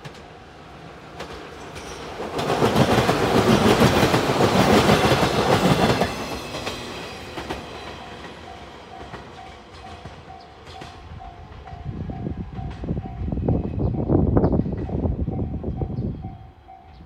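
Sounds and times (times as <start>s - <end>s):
electric train passing: 0.0s - 17.0s
level-crossing warning bell: 4.9s - 13.5s, 15.4s - 17.0s.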